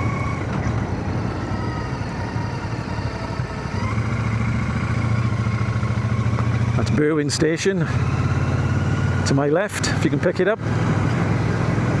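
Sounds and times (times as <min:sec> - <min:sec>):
motorcycle engine running: 0:00.0 - 0:12.0
road noise: 0:00.0 - 0:12.0
wind noise: 0:10.6 - 0:12.0.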